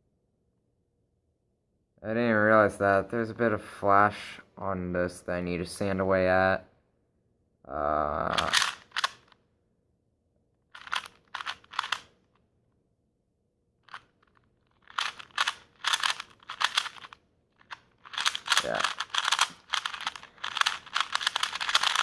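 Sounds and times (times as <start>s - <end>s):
sandpaper scraping plastic: 14.8s - 22.0s.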